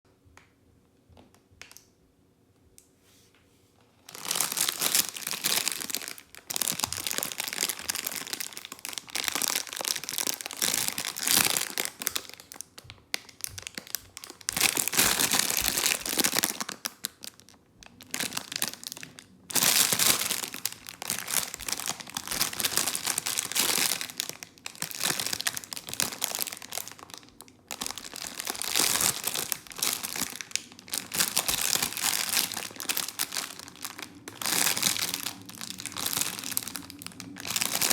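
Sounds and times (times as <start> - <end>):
packaging crinkling and rustling: 4.0 - 37.9.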